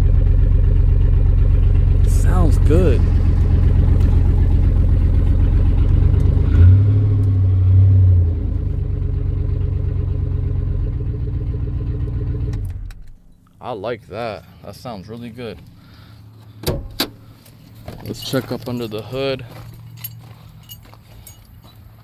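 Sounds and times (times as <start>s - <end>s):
truck engine idling: 0.0s - 13.3s
man talking: 2.0s - 3.2s, 13.6s - 15.6s, 18.0s - 19.6s.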